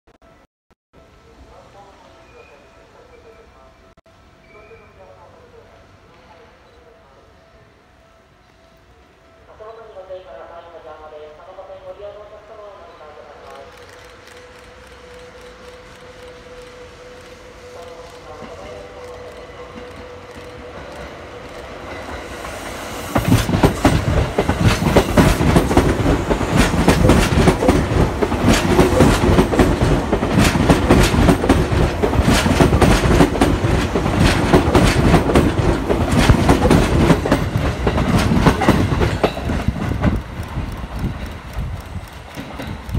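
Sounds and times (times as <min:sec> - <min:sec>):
electric train passing: 0:01.0 - 0:42.9
train wheels clattering over rail joints: 0:23.2 - 0:42.9.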